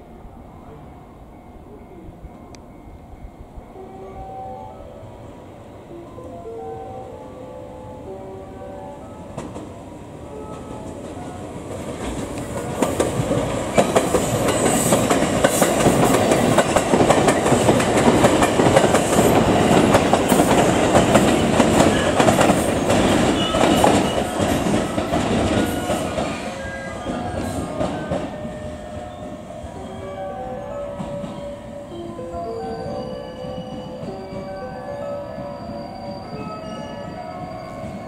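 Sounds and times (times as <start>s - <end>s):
train rumble: 9.0s - 38.0s
train wheels clickety-clack: 9.4s - 9.8s, 10.4s - 29.3s.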